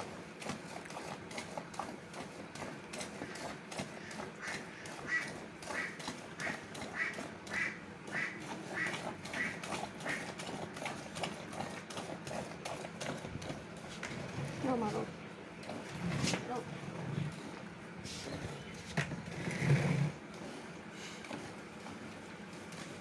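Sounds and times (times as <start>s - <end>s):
milk squirting into a bucket: 0.0s - 14.4s.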